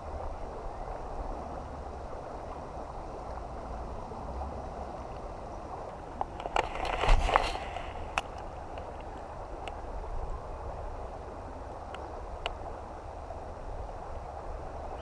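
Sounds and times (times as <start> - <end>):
creek water rushing: 0.0 - 15.0
brief rustle: 6.4 - 8.3.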